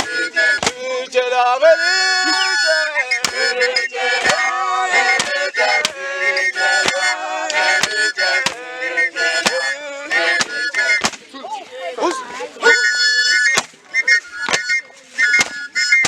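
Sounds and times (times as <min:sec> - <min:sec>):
sharp percussive strikes: 0:00.0 - 0:00.8, 0:03.2 - 0:03.6, 0:04.2 - 0:11.2, 0:13.5 - 0:13.8, 0:15.4 - 0:15.6
group singing chant-like song: 0:00.0 - 0:11.3.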